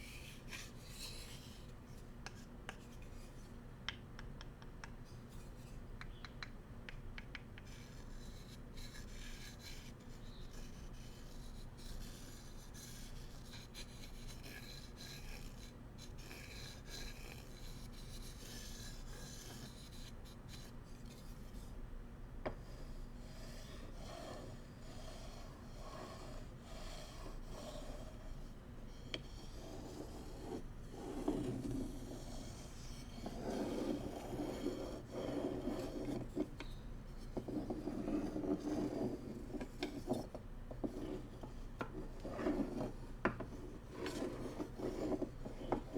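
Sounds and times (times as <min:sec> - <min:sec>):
light taps: 0:06.0 - 0:07.7.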